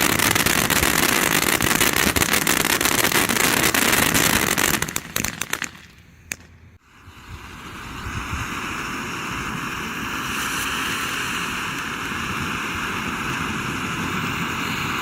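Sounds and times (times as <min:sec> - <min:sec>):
firework sparks hissing: 0:00.0 - 0:06.5.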